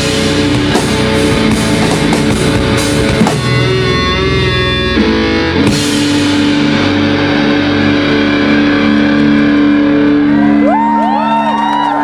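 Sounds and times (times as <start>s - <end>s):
electric guitar notes sustaining: 0.0s - 12.0s
crowd whooping: 9.2s - 12.0s.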